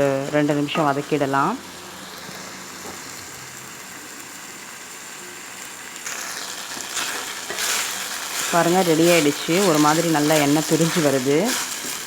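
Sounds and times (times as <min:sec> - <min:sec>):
food sizzling in oil: 0:00.0 - 0:12.0
stirring in a pan: 0:06.0 - 0:12.0.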